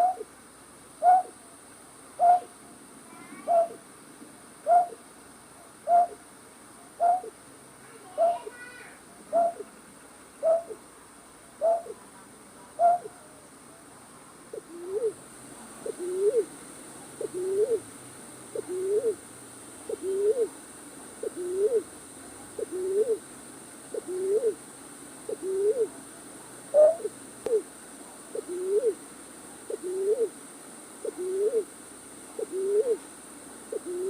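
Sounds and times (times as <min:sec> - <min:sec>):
night bird hooting: 0:00.0 - 0:00.3, 0:01.0 - 0:01.4, 0:02.2 - 0:02.5, 0:03.4 - 0:03.8, 0:04.6 - 0:05.0, 0:05.8 - 0:06.2, 0:07.0 - 0:07.4, 0:09.3 - 0:09.7, 0:10.4 - 0:10.8, 0:11.6 - 0:12.0, 0:12.8 - 0:13.2, 0:14.5 - 0:15.2, 0:15.8 - 0:16.5, 0:17.2 - 0:17.8, 0:18.6 - 0:19.2, 0:19.9 - 0:20.6, 0:21.2 - 0:21.9, 0:22.6 - 0:23.2, 0:23.9 - 0:24.6, 0:25.3 - 0:26.0, 0:26.7 - 0:27.7, 0:28.3 - 0:29.0, 0:29.7 - 0:30.3, 0:31.0 - 0:31.7, 0:32.4 - 0:33.0, 0:33.7 - 0:34.0.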